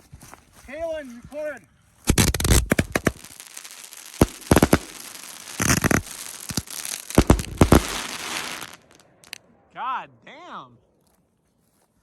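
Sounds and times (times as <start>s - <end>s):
fireworks bangs: 2.1s - 9.4s
fireworks crackling hiss: 2.1s - 9.4s.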